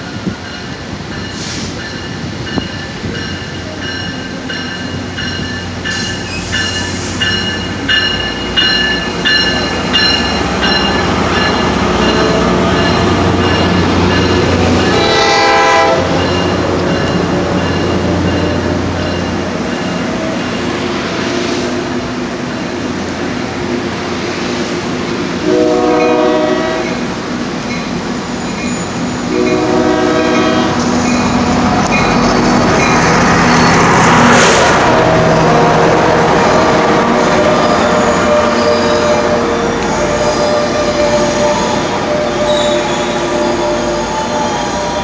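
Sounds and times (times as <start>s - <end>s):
diesel locomotive drone: 0.0s - 45.0s
rhythmic metallic train clatter: 0.0s - 45.0s
train horn blast: 14.4s - 16.6s, 25.4s - 27.0s, 29.2s - 31.0s, 34.5s - 45.0s.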